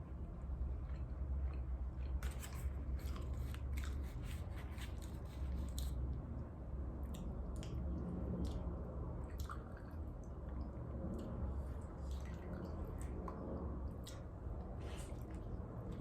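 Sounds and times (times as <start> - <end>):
steady low hum: 0.0 - 16.0
wet chewing and mouth smacks: 7.0 - 11.4.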